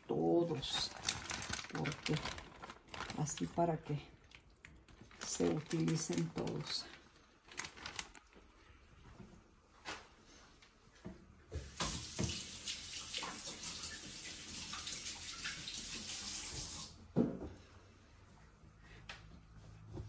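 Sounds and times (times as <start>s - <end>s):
tap running into sink: 11.5s - 12.6s.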